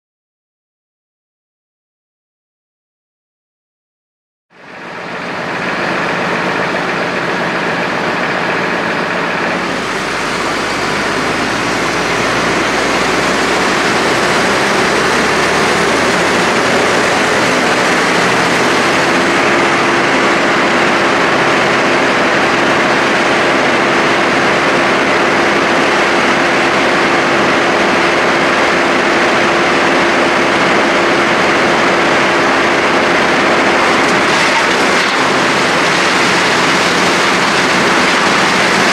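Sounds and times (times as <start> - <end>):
wood chipper running: 4.6 - 38.9
steady tone: 9.2 - 20.2.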